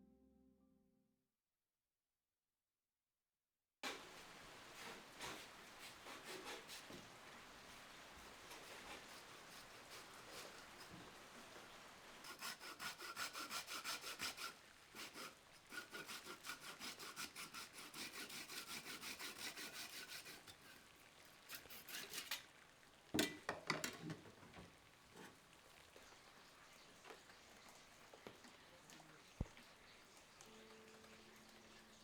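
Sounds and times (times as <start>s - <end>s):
hand saw cutting wood: 6.0s - 7.0s, 8.5s - 11.0s, 12.2s - 22.5s.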